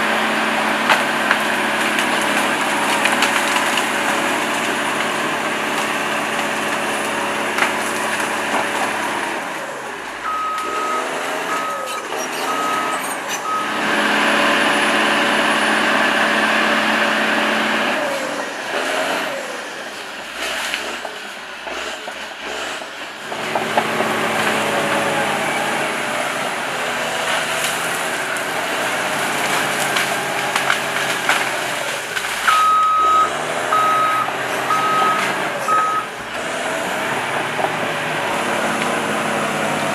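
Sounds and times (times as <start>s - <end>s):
heavy machine engine running: 0.0s - 39.9s
reversing alarm beeping: 10.2s - 13.9s, 32.5s - 36.1s.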